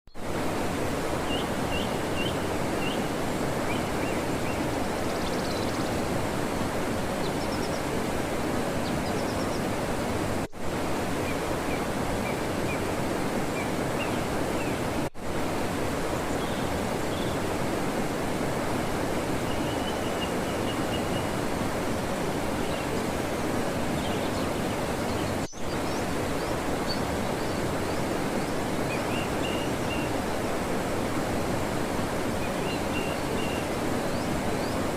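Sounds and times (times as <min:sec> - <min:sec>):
flowing water rushing: 0:00.1 - 0:34.9.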